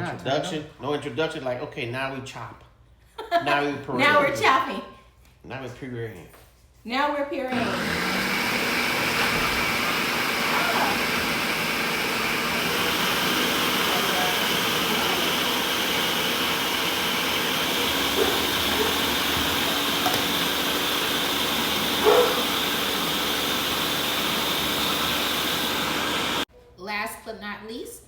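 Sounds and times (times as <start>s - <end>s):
blender clunk: 7.5s - 26.4s
electric blender motor running: 7.5s - 26.5s.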